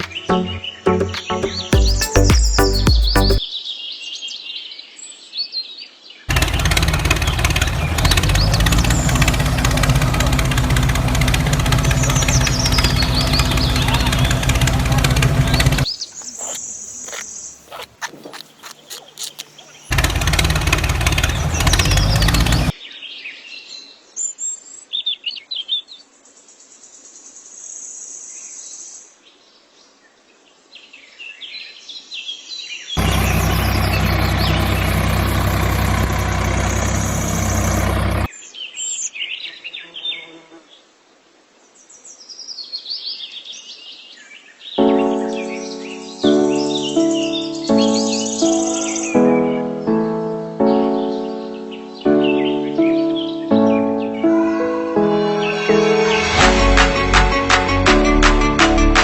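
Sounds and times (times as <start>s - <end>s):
birds chirping: 0.0s - 4.4s, 5.8s - 22.8s, 33.0s - 39.1s, 44.5s - 56.4s
loud steady motor noise: 6.3s - 17.9s, 19.9s - 22.7s, 33.0s - 38.3s.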